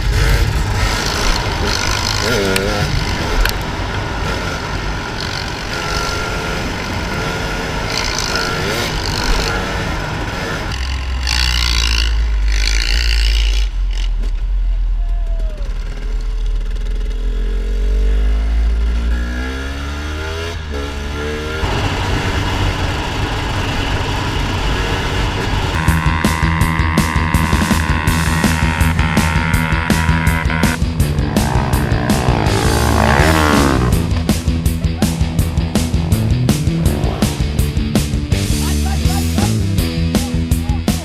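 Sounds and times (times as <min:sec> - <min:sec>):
dirt bike engines revving: 0:00.0 - 0:41.0
heavy low rumble: 0:13.2 - 0:19.0, 0:26.8 - 0:40.5.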